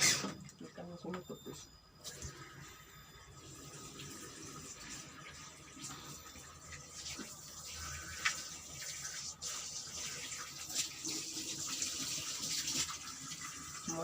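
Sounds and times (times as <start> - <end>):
water running: 3.3 - 14.0.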